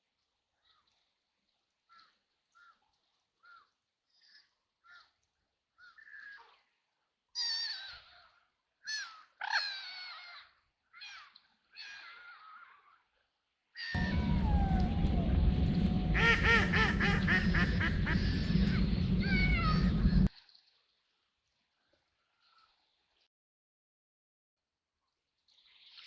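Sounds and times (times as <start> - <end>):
ducks quacking: 14.0 - 20.3.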